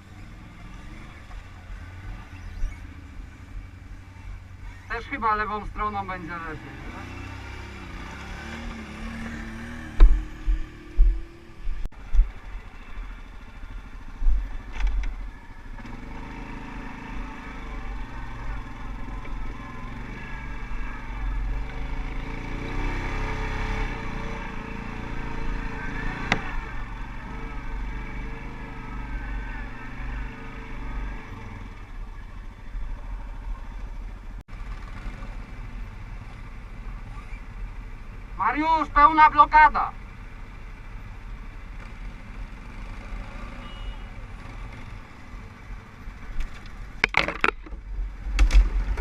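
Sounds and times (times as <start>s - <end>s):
quad bike engine revving: 6.4s - 11.6s, 15.8s - 31.7s
thumps: 9.8s - 11.8s, 46.4s - 49.0s.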